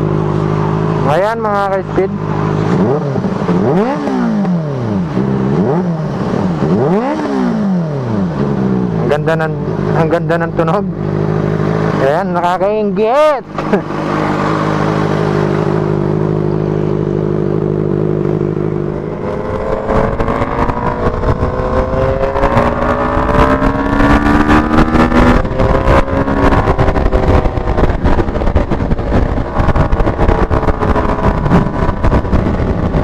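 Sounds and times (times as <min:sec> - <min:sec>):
motorcycle engine revving: 0:00.0 - 0:33.0
wind rushing on microphone: 0:18.7 - 0:33.0.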